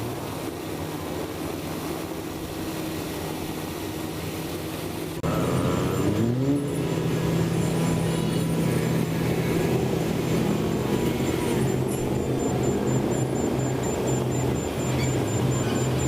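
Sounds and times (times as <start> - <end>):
engine running and revving: 5.1 - 16.0.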